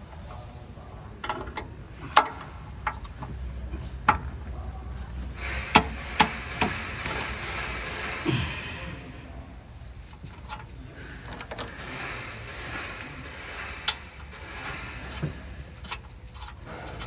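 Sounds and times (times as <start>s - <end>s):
steady hiss: 4.8s - 10.1s, 10.9s - 16.0s
tools clicking and knocking: 5.2s - 8.6s.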